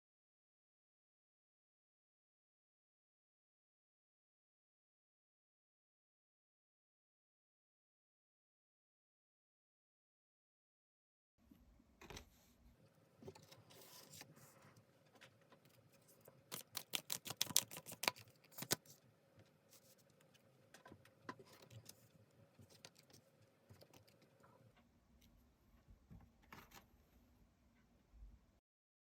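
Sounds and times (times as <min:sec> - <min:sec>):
cards rustling: 0:15.8 - 0:19.0.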